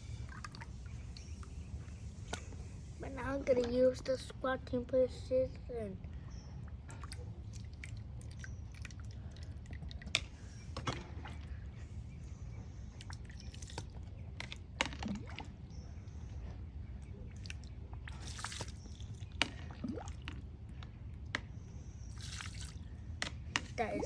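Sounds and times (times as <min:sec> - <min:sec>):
steady low hum: 0:00.0 - 0:24.0
wet sand squishing and dripping: 0:17.3 - 0:21.4, 0:22.0 - 0:23.8.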